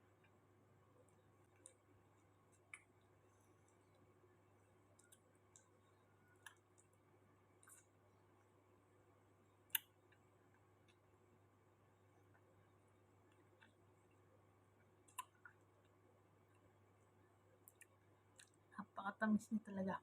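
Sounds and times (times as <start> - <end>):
small clicks from eating: 1.0 - 7.0, 7.6 - 8.0, 13.2 - 16.7, 17.6 - 18.7.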